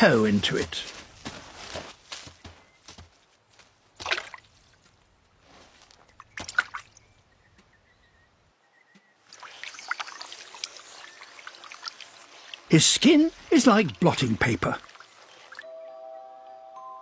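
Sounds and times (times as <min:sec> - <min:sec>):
water splashes in puddle: 0:04.0 - 0:04.6, 0:06.2 - 0:07.0, 0:09.3 - 0:12.7
water trickling: 0:09.2 - 0:15.7.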